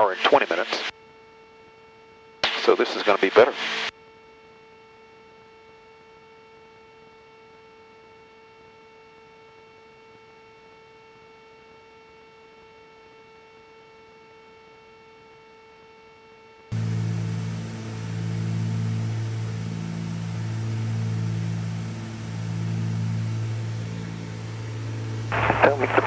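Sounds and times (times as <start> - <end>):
faint steady hum: 16.7 - 26.0.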